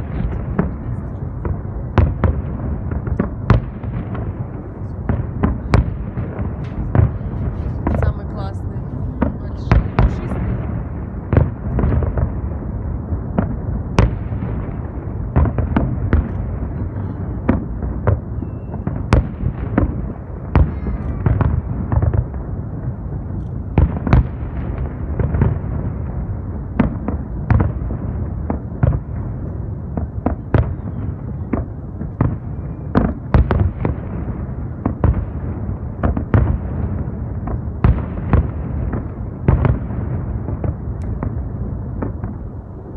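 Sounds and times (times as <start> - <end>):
fireworks bangs and pops: 0.0 - 42.9
fireworks shell bursts rumbling: 1.4 - 16.8.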